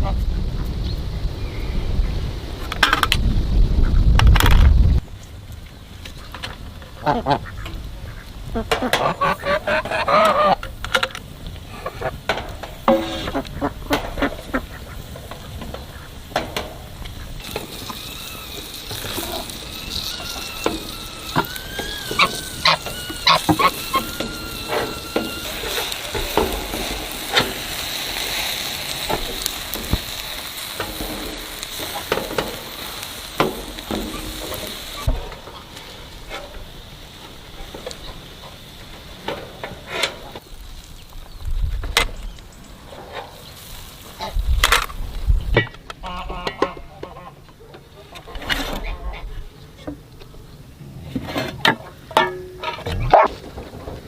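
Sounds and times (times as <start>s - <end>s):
food sizzling in a pan: 12.7s - 41.5s
wavering tone: 19.9s - 26.4s.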